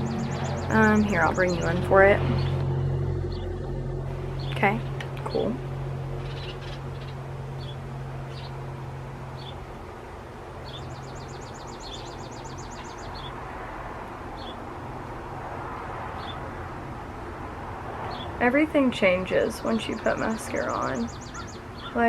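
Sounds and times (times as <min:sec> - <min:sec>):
small birds chirping: 0:00.0 - 0:02.6, 0:04.4 - 0:08.7, 0:09.4 - 0:09.7, 0:10.6 - 0:13.4, 0:14.4 - 0:14.7, 0:16.2 - 0:16.5, 0:19.4 - 0:22.0
bird trill: 0:00.0 - 0:03.6, 0:04.3 - 0:08.7, 0:10.6 - 0:13.4, 0:19.9 - 0:22.0
low hum: 0:00.0 - 0:21.8.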